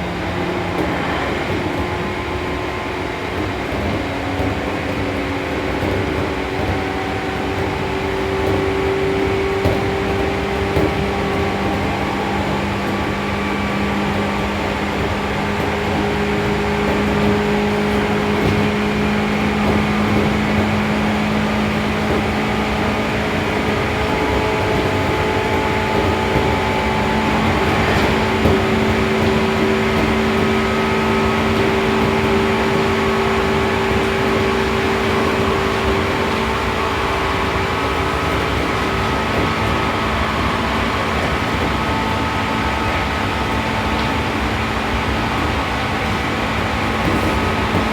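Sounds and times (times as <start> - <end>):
traction motor hum: 0.0 - 47.9
train wheels rolling on rails: 0.0 - 47.9.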